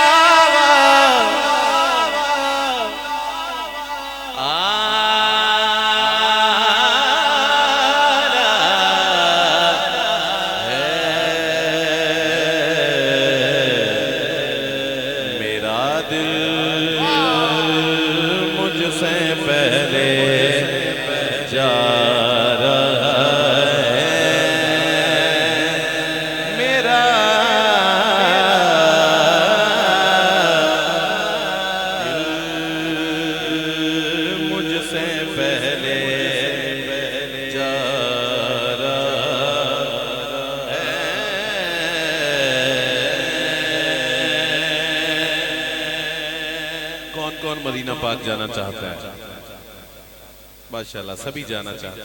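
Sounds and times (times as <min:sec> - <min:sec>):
man singing melismatic chant: 0:00.0 - 0:50.0, 0:50.7 - 0:52.0
man singing melismatic line: 0:15.7 - 0:24.1.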